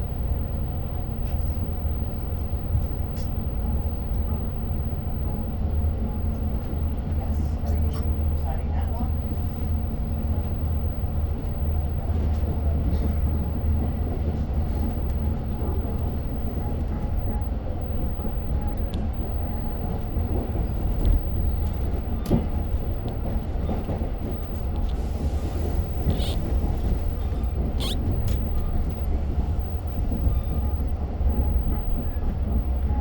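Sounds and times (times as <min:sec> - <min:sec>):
train rumble from inside: 0:00.0 - 0:33.0
train clicks and knocks: 0:11.3 - 0:33.0.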